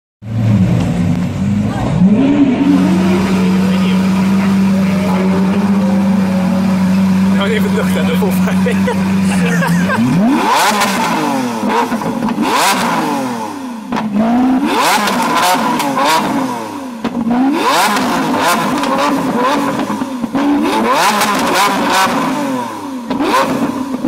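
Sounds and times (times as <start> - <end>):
car engine revving: 0.2 - 24.0
exhaust crackles and pops: 10.0 - 12.9, 15.0 - 16.3, 17.0 - 20.5.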